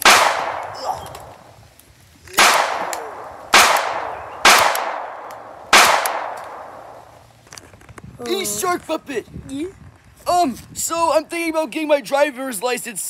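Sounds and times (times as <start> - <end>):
gunshot blasts: 0.0 - 1.4, 2.4 - 7.1.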